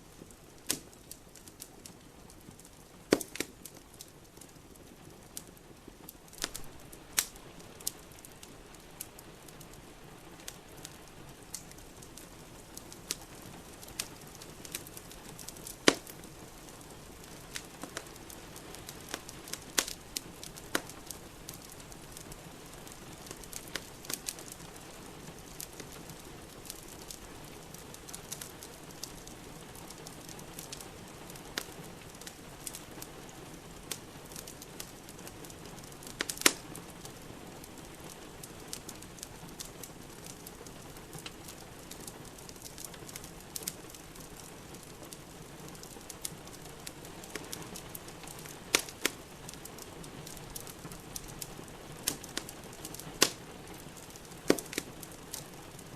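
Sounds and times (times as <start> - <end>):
wood fire crackling and popping: 0.0 - 55.9.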